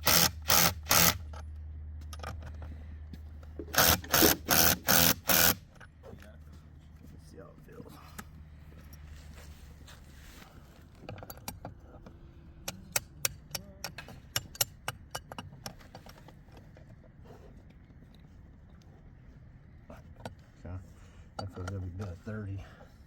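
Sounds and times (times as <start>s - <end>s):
metal wrench clicking on bolts: 0.0s - 2.6s, 12.7s - 15.8s.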